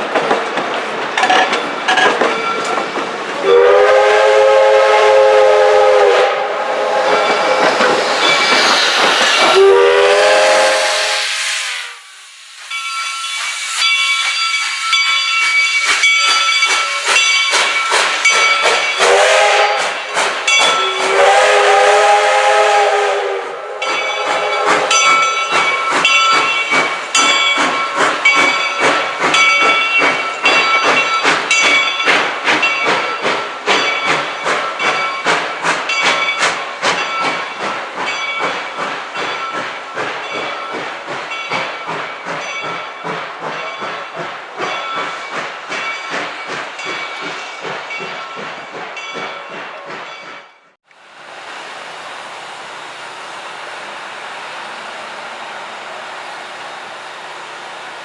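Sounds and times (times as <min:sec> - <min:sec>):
train wheels clicking on rails: 0:00.0 - 0:58.0
train whistle blasts: 0:03.4 - 0:08.2, 0:09.3 - 0:12.1, 0:18.7 - 0:25.4.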